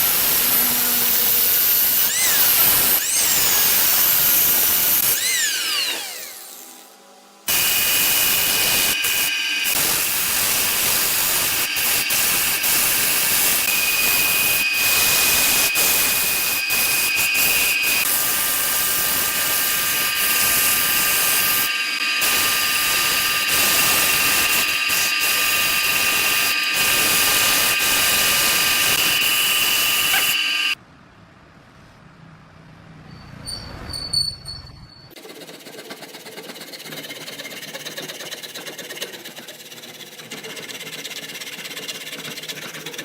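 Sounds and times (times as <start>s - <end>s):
turning tool cutting wood: 0.0s - 30.8s, 35.2s - 43.0s
wood lathe motor whine: 0.0s - 30.8s.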